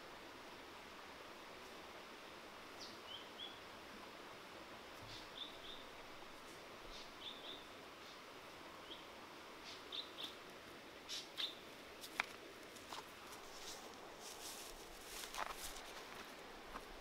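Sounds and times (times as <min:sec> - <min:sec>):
faint outdoor hiss: 0:00.0 - 0:17.0
bird chirps: 0:06.9 - 0:07.7, 0:09.7 - 0:10.4, 0:11.1 - 0:11.6
footsteps through grass: 0:12.0 - 0:17.0.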